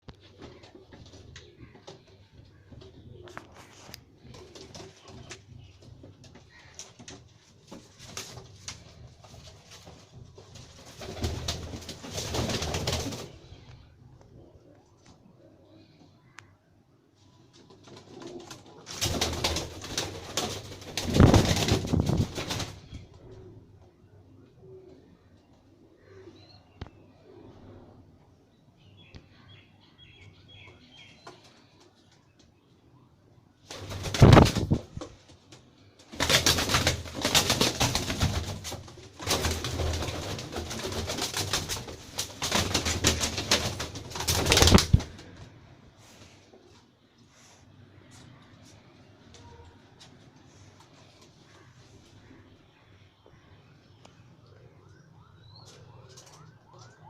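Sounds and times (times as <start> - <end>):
wings rustling and fluttering: 0.0 - 16.0, 17.2 - 23.9, 33.6 - 52.5, 55.6 - 57.0
pigeons cooing: 0.2 - 5.8, 22.5 - 28.1.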